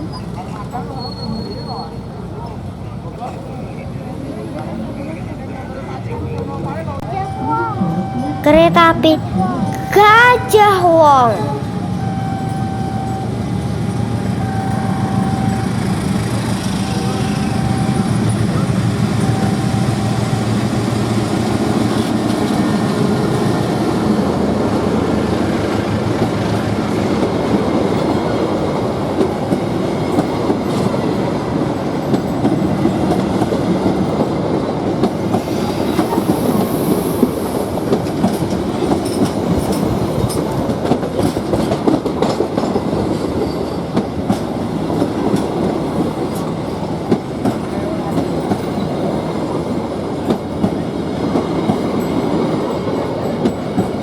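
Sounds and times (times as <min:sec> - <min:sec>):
high wheel squeal: 0:00.0 - 0:02.2
train wheels clicking over rail joints: 0:21.3 - 0:54.0.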